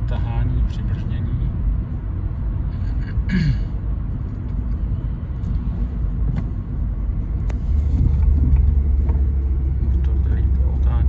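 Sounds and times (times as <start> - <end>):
car engine running: 0.0 - 11.0
road rumble inside car cabin: 0.0 - 11.0.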